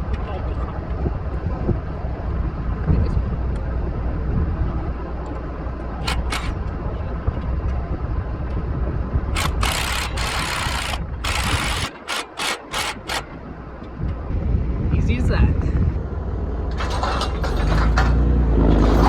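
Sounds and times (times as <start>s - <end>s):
tractor engine running: 5.0s - 14.3s
wrench ratcheting: 6.0s - 6.6s, 9.4s - 13.3s.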